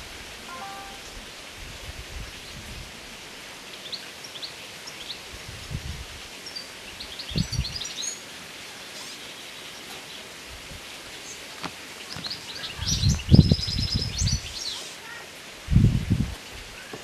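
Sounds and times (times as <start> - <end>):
steady hiss: 0.0 - 17.0
small birds chirping: 6.4 - 10.3, 11.1 - 15.2.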